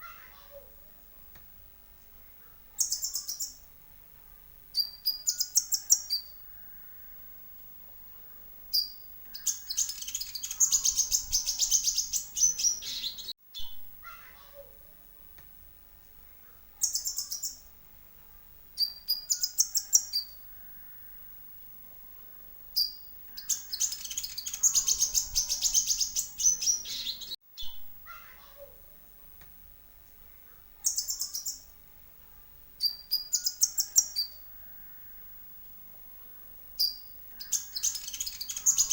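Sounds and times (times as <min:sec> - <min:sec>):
bird chirping and trilling: 0:02.8 - 0:03.6, 0:04.8 - 0:06.4, 0:08.7 - 0:13.8, 0:16.8 - 0:17.7, 0:18.8 - 0:21.1, 0:22.8 - 0:27.9, 0:30.8 - 0:31.7, 0:32.8 - 0:34.9, 0:36.8 - 0:38.9.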